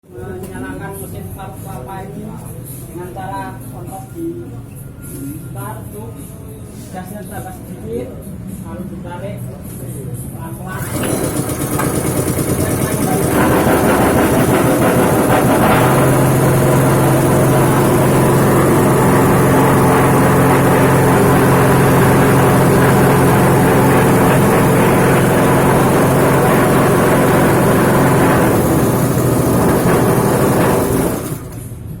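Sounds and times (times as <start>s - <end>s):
coconut grating machine: 10.8s - 32.0s
petrol engine running: 10.8s - 32.0s.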